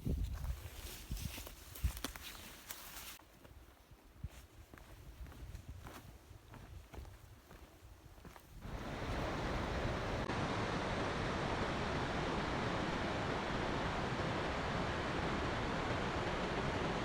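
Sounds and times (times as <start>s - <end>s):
rushing water: 8.6s - 17.0s.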